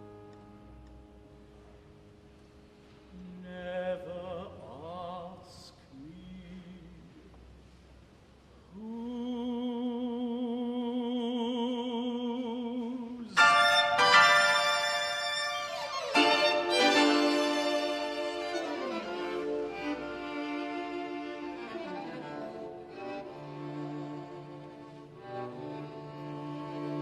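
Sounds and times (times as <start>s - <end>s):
string quartet and piano music: 13.4s - 27.0s.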